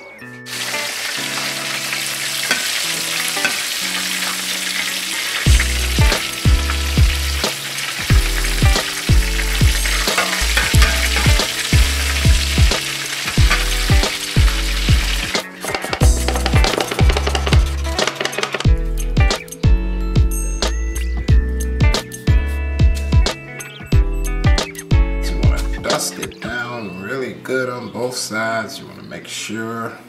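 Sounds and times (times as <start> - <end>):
background music: 0.0 - 29.0
food sizzling in hot oil: 0.5 - 18.8
heavy bass beat: 5.5 - 7.5, 8.1 - 15.3, 16.0 - 18.0.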